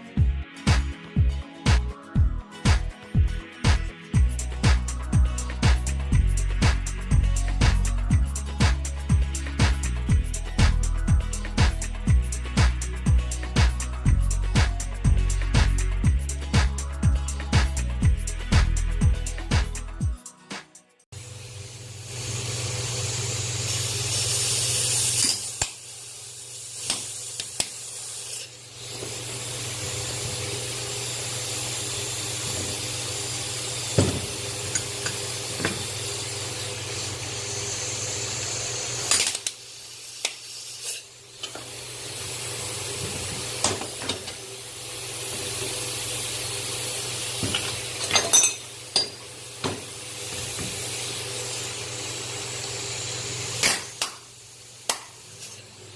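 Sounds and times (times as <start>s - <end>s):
hissing air spray: 21.9s - 48.0s.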